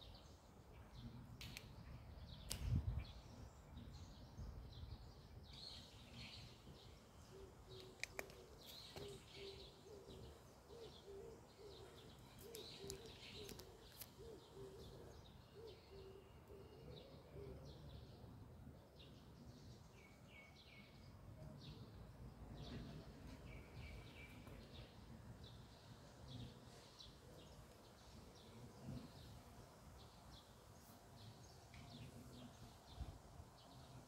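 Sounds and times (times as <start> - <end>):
bird chirps and calls: 7.3 - 17.3.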